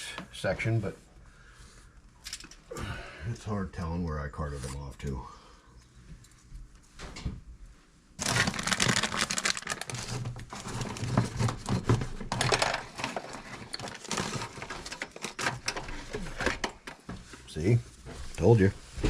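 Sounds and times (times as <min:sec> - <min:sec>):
small hard items rattling: 0:08.2 - 0:17.0.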